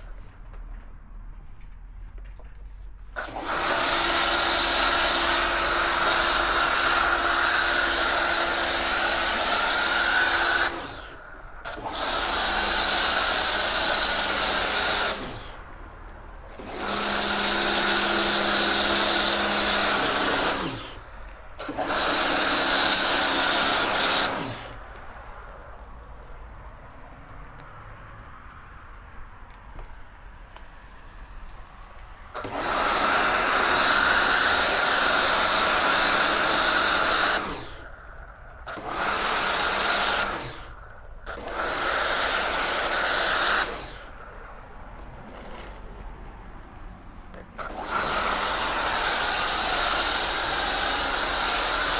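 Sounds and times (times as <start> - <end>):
pressure washer motor hum: 3.1 - 15.8, 16.4 - 25.0, 32.4 - 44.5, 47.3 - 51.9
water jet hissing: 3.2 - 15.6, 16.6 - 21.0, 21.6 - 24.9, 32.4 - 44.4, 47.6 - 51.9.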